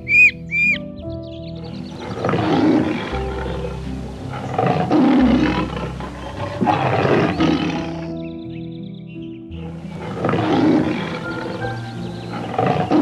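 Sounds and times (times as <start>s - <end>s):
piano music: 0.0s - 13.0s
lion roaring: 1.9s - 8.2s, 9.5s - 13.0s.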